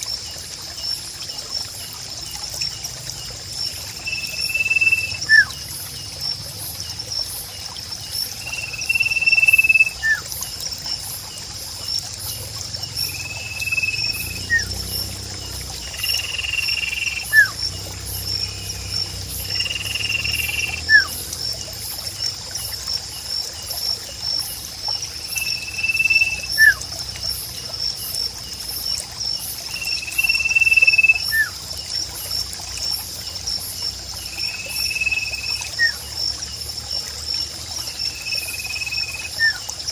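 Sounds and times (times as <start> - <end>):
pulsing insect chorus: 0.0 - 39.9
trickling water: 0.0 - 39.9
bird whistle and chirp: 4.1 - 5.6, 8.6 - 10.2, 13.2 - 14.7, 17.0 - 17.6, 19.8 - 21.2, 25.4 - 26.8, 30.2 - 31.6.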